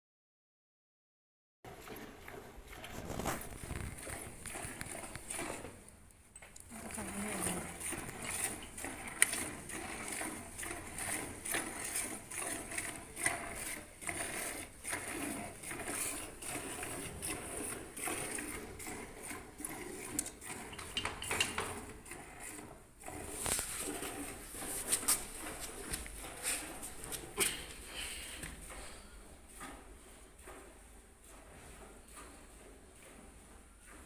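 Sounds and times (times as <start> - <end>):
milk squirting into a pail: 1.8 - 5.8, 6.7 - 28.9.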